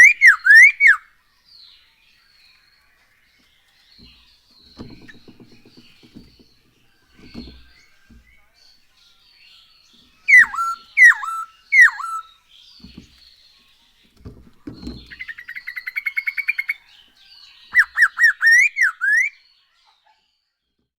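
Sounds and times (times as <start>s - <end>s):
bird singing swooping whistles: 0.0s - 1.0s, 10.2s - 12.4s, 17.7s - 19.5s
fast bird trill: 10.3s - 12.3s, 17.7s - 19.4s.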